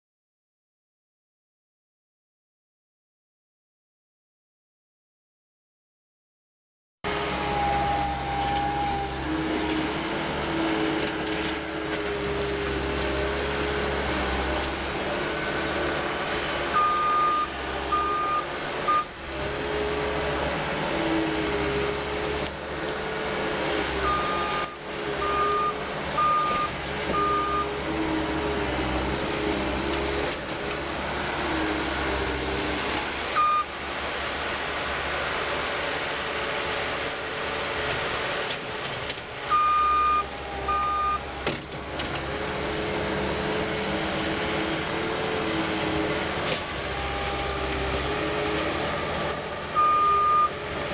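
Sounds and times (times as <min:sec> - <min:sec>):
diesel engine running under load: 0:07.1 - 0:50.9
backup alarm beeping: 0:39.5 - 0:41.2.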